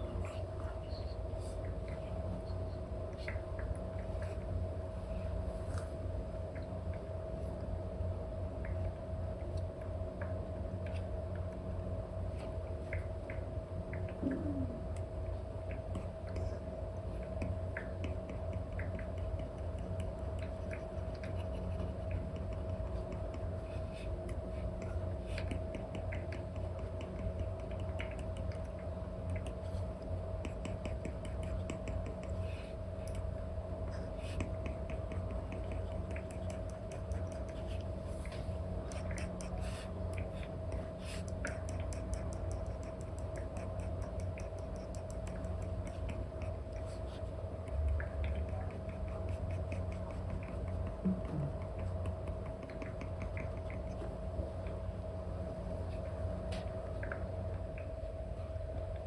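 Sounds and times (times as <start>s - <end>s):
stylus tapping and scratching on screen: 0.0s - 7.7s, 8.6s - 59.0s
steady low hum: 0.0s - 59.0s.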